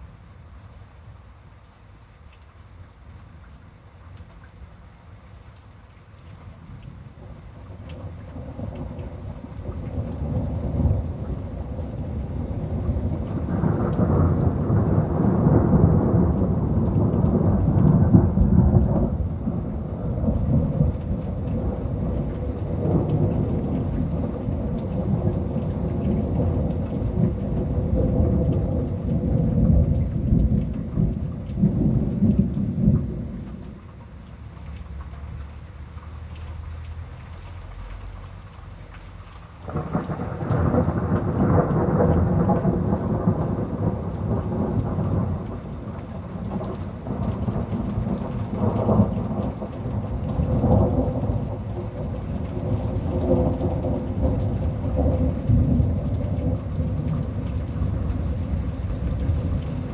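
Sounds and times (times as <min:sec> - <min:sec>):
rain falling: 0:00.0 - 0:59.9
thunder rolling: 0:07.6 - 0:33.8, 0:39.6 - 0:59.9.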